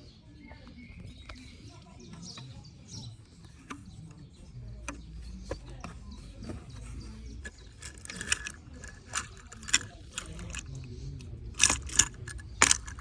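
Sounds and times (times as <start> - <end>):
small hard objects clattering: 5.8 - 10.7, 11.5 - 13.0.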